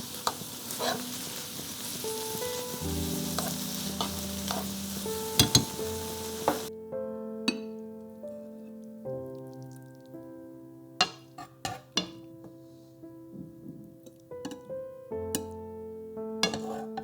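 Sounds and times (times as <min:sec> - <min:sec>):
food sizzling in a frying pan: 0:00.0 - 0:06.7, 0:16.4 - 0:17.0
background music: 0:00.0 - 0:17.0
utensil scraping and knocking pan: 0:00.2 - 0:01.1, 0:03.3 - 0:04.7, 0:16.4 - 0:17.0.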